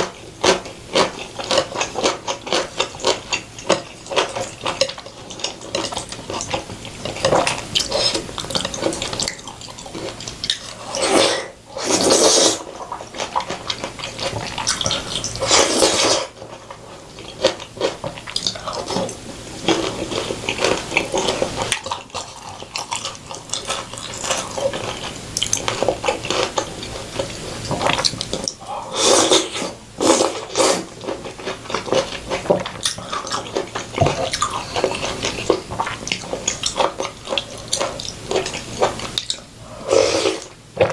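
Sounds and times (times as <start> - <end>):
wet chewing and smacking: 0.0 - 11.0, 12.6 - 28.7, 30.3 - 39.5
long slurps: 10.6 - 12.8, 15.0 - 16.4, 28.6 - 31.0, 39.7 - 40.5.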